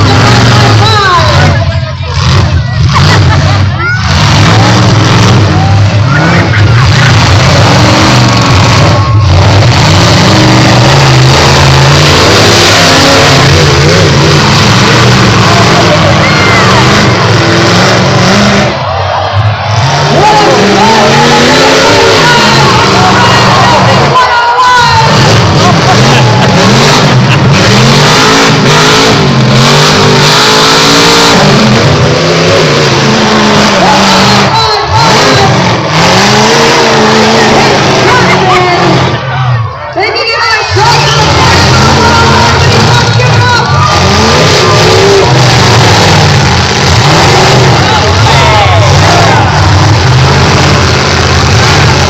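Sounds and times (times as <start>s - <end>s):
truck engines revving: 0.0s - 52.0s.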